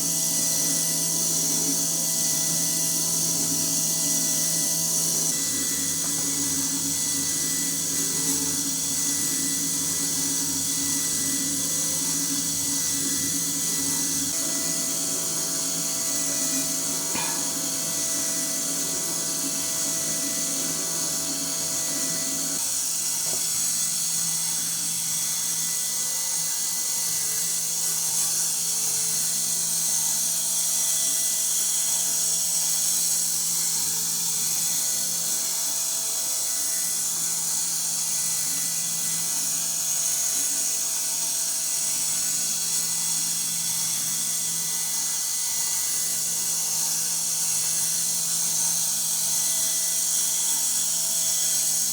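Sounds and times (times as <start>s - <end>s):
model engine whirring and rattling: 0.0s - 22.6s.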